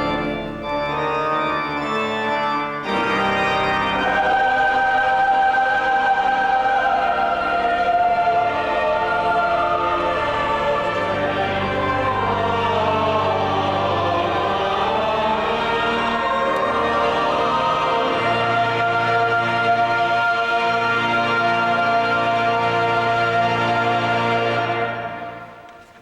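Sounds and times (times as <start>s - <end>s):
organ sustaining low tones: 0.0s - 26.0s
choir singing held notes: 3.7s - 26.0s.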